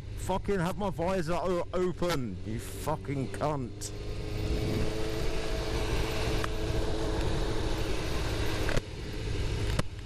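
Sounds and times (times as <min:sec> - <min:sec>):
motorcycle engine running: 0:01.4 - 0:10.0
wind rush: 0:03.9 - 0:09.6.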